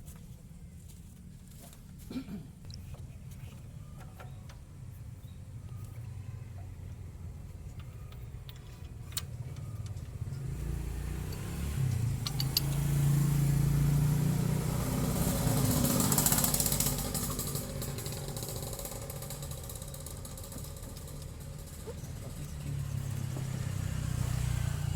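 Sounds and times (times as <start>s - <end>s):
vehicle engine passing: 9.3s - 24.9s
sharp clicks: 11.3s - 12.9s.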